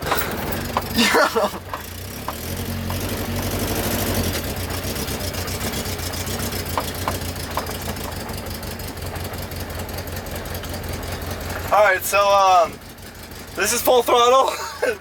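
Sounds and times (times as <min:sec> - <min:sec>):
car engine drone: 0:00.0 - 0:15.0
fast even engine ticking: 0:01.8 - 0:15.0.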